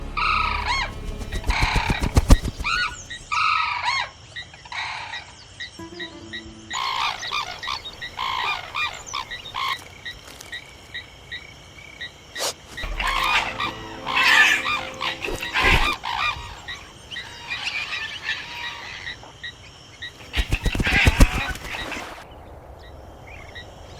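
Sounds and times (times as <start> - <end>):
bird calls: 0.4 - 3.3, 20.3 - 22.1.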